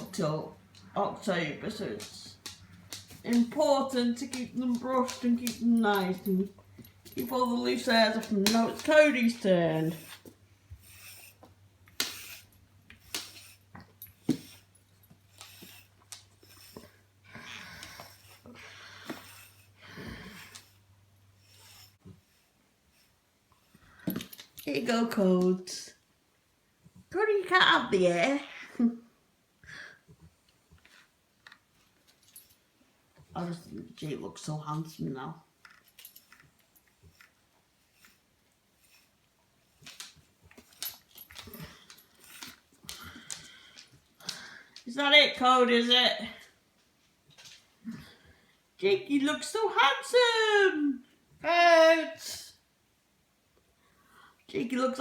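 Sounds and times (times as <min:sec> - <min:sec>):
rustling: 0:00.0 - 0:25.3, 0:35.5 - 0:44.5
brush swishing through fur: 0:07.3 - 0:17.0, 0:17.8 - 0:23.8, 0:36.2 - 0:40.8.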